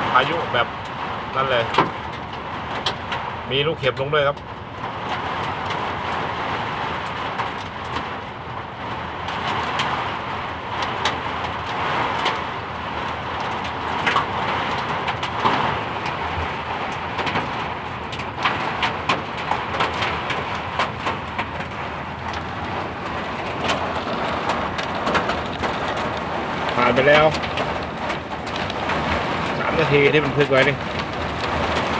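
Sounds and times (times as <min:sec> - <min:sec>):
wind and rain rushing: 0:00.0 - 0:31.9
hailstones striking hard surfaces: 0:13.4 - 0:31.9.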